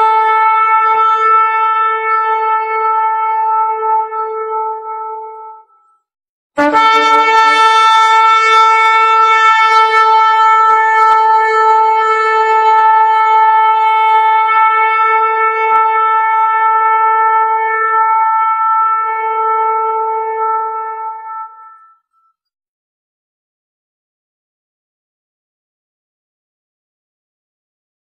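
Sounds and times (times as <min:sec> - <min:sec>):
ram's horn long blast: 0:00.0 - 0:05.9, 0:06.6 - 0:22.0.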